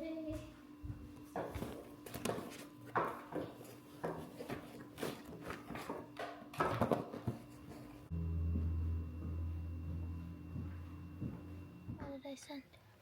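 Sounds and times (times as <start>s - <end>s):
objects knocking and clattering: 1.3s - 7.9s
steady low hum: 7.1s - 12.5s.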